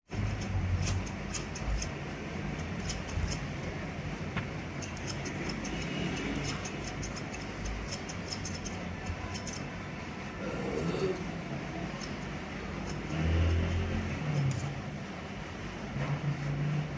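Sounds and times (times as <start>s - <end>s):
scissors snipping hair: 0.1s - 3.7s, 4.8s - 9.7s, 12.0s - 14.7s.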